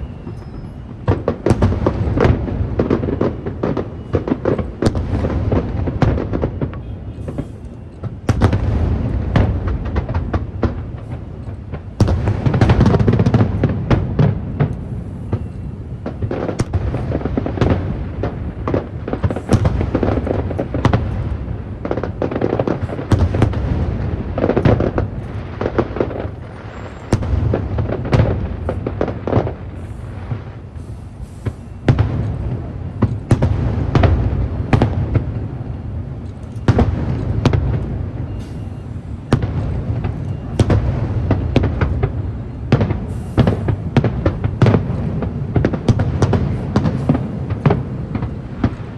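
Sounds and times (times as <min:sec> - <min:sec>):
fireworks bangs and crackling: 0:00.0 - 0:48.9.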